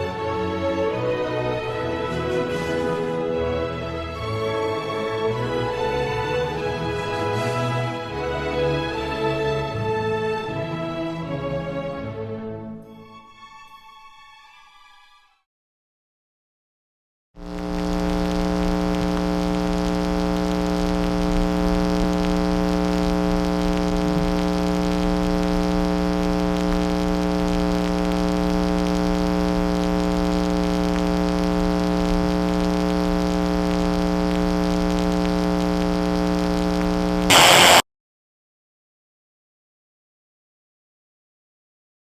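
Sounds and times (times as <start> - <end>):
burst of static: 17.4 - 37.8
electronic drone of held tones: 17.4 - 37.8.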